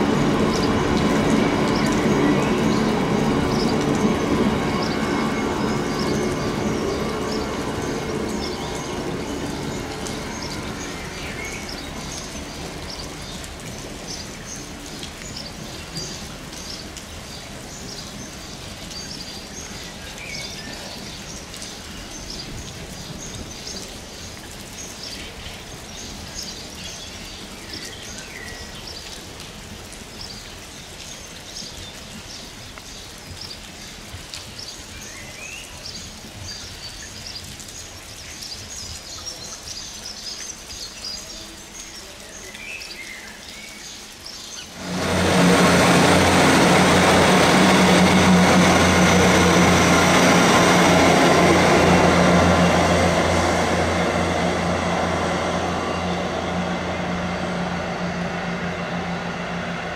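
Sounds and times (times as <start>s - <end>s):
distant freight train rumble: 0.0s - 24.8s, 44.6s - 59.9s
steady rain: 0.0s - 59.9s.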